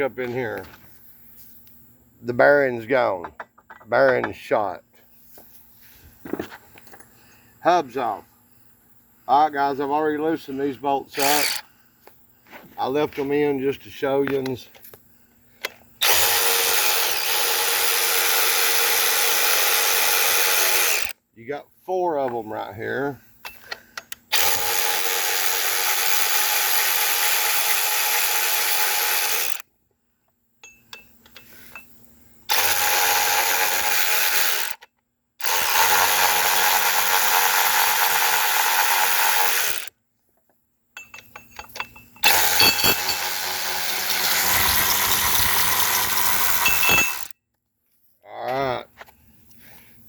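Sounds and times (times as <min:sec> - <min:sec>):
power drill spinning out bolts: 0:11.2 - 0:11.6, 0:15.6 - 0:21.2, 0:23.6 - 0:29.6, 0:32.5 - 0:39.9, 0:41.0 - 0:47.3.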